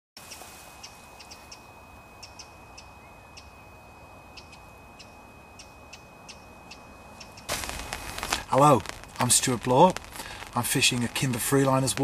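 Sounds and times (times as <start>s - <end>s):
small bird chirping: 0.2s - 3.7s, 4.3s - 9.0s
faint steady hiss: 0.2s - 12.0s
thin high tone: 0.5s - 11.5s.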